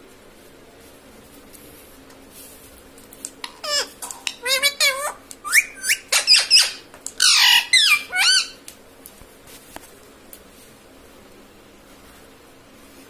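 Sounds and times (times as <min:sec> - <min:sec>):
parakeet squawking: 0:03.3 - 0:08.6.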